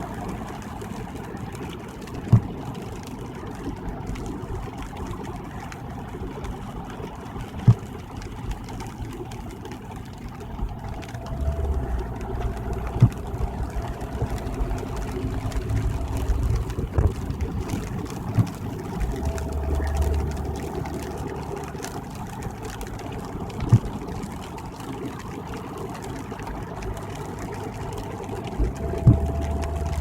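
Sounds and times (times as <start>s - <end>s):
car tyre and engine rumble: 0.0s - 30.0s
sharp low thumps: 10.7s - 21.2s.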